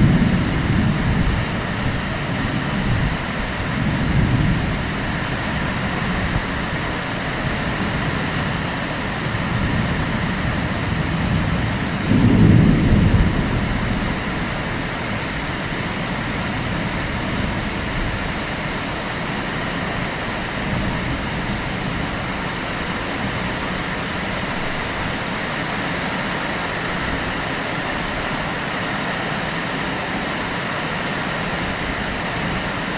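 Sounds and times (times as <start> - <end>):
low rumble of thunder: 0.0 - 25.6
heavy rain falling: 0.0 - 32.9.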